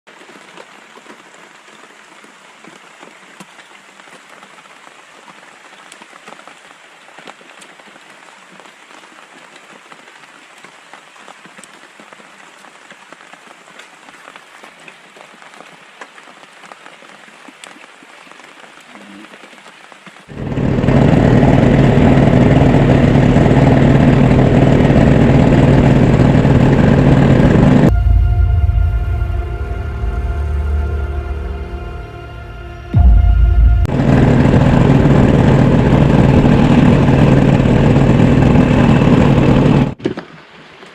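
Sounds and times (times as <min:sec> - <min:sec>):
light rain falling: 0:00.1 - 0:20.3, 0:39.9 - 0:40.9
loud drone with low hum: 0:20.3 - 0:40.0.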